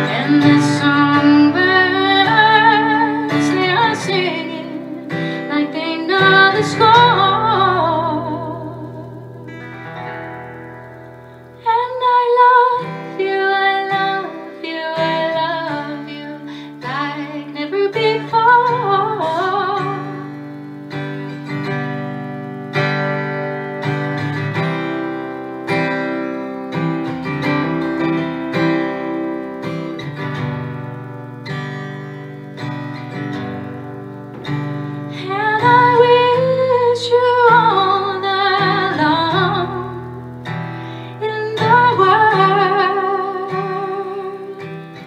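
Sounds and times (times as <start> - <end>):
woman singing: 0.0 - 9.8, 11.5 - 20.8, 35.1 - 45.0
acoustic guitar strumming: 0.0 - 45.0.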